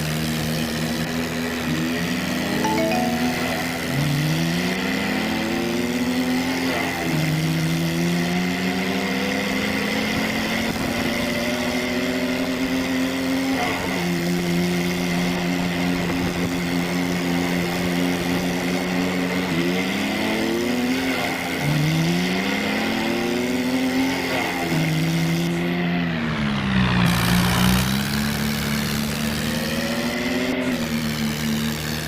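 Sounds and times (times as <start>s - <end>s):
tractor engine idling and revving: 5.1s - 32.0s.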